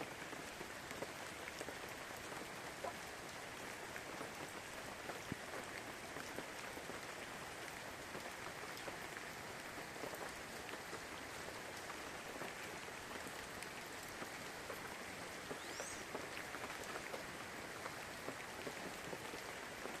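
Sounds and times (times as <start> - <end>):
steady rain pattering: 0.0 - 20.0.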